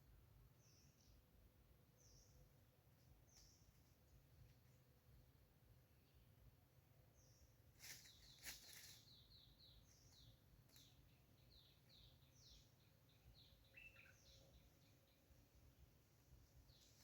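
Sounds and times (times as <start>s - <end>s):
small bird chirping: 2.0s - 4.0s, 7.2s - 15.6s.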